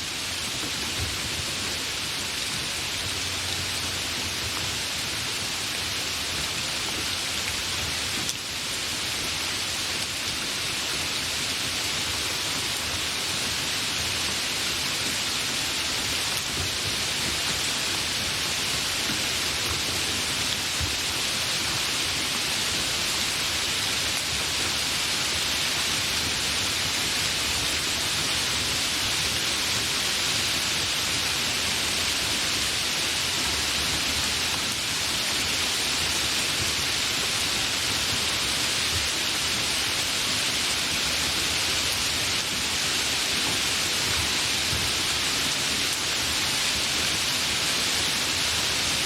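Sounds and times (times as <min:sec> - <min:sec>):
heavy rain falling: 0:00.0 - 0:49.0.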